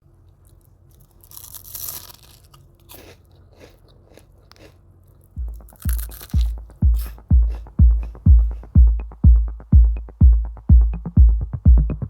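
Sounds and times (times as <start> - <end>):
faint chewing: 0.2 - 8.6
crunchy snack bite: 0.5 - 7.7
electronic music with kick drum: 5.4 - 12.0.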